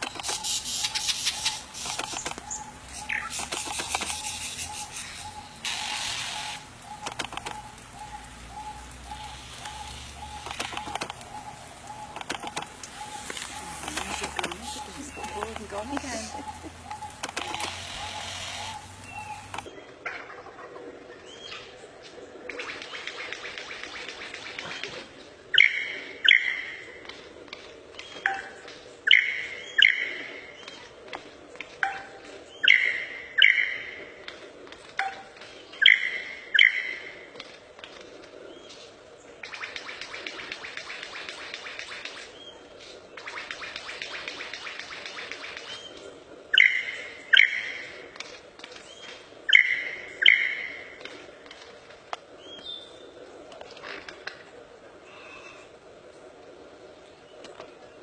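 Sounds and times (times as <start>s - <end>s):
bird chirping rapidly: 0.0s - 19.7s.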